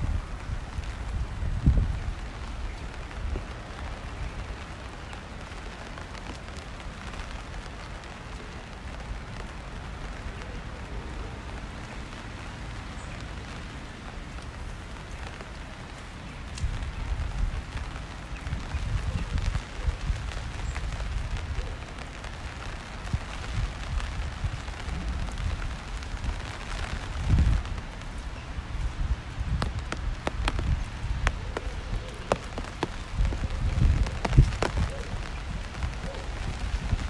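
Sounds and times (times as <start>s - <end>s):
rain on a wet street: 0.0s - 37.0s.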